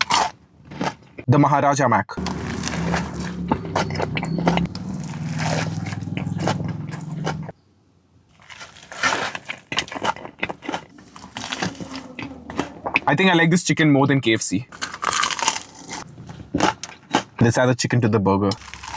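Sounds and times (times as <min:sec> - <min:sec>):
biting and chewing burger: 0:00.0 - 0:01.3, 0:02.2 - 0:07.5, 0:08.3 - 0:13.3, 0:14.7 - 0:17.4, 0:18.6 - 0:18.9
low steady hum: 0:02.2 - 0:08.2.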